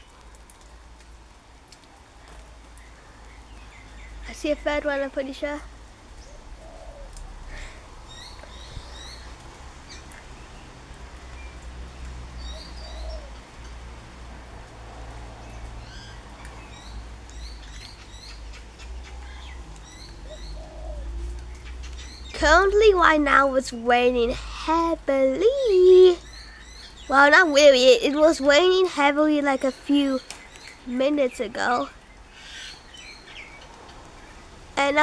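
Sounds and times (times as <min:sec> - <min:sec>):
birds chirping and twittering: 0:01.9 - 0:14.1, 0:15.0 - 0:35.0
lower bird calls: 0:12.4 - 0:13.8, 0:15.4 - 0:23.4, 0:25.8 - 0:28.6.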